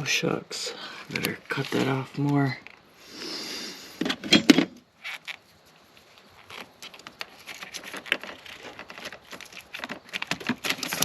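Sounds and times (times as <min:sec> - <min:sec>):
light clicks and scrapes: 0:04.0 - 0:11.0.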